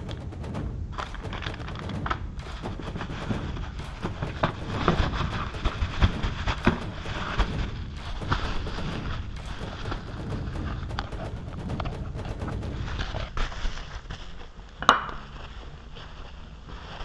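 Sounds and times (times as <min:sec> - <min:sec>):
sharp knock: 0:00.0 - 0:13.4
low rumble: 0:00.0 - 0:16.8.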